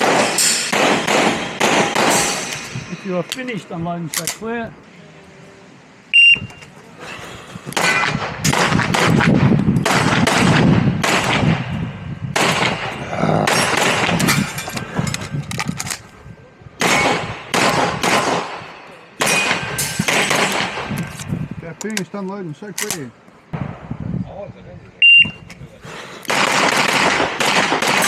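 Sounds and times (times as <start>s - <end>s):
rapid pistol fire: 0.0s - 2.3s, 7.8s - 11.7s, 12.4s - 14.2s, 16.8s - 21.0s, 26.3s - 28.0s
shot timer beep: 6.1s - 6.6s, 25.0s - 25.4s.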